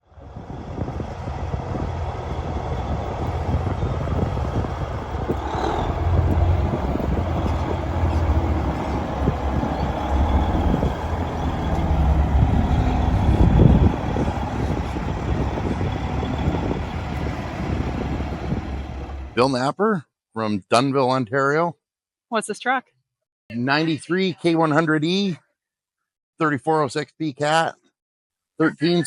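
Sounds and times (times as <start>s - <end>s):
diesel truck engine running: 0.0s - 19.4s.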